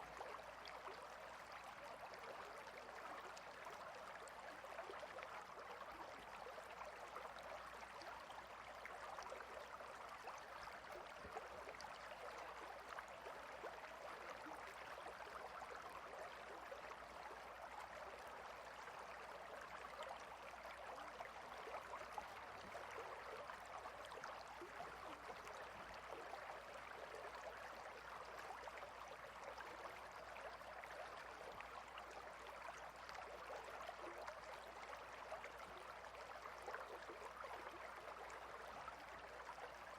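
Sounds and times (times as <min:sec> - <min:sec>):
river water babbling: 0:00.0 - 0:39.9.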